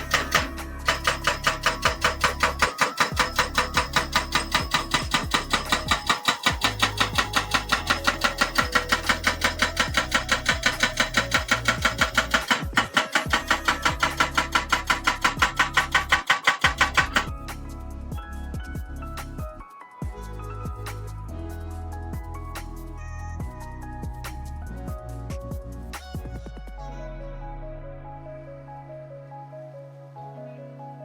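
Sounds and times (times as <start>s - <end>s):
bass line: 0.0s - 2.6s
music with fast percussive beat: 0.0s - 21.1s.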